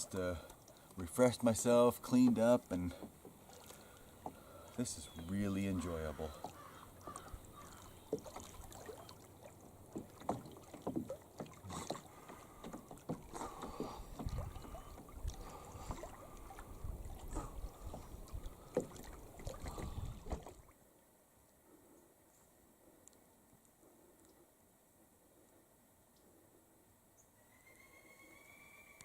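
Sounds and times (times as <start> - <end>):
paddle splashes: 0.0 - 20.8
water sloshing: 0.0 - 20.8
light knocks on canoe: 9.9 - 14.8.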